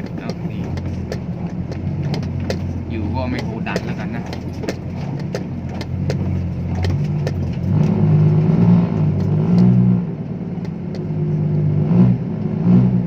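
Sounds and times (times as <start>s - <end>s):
light rattling clicks: 0.0s - 8.4s
truck diesel engine revving: 0.0s - 13.0s.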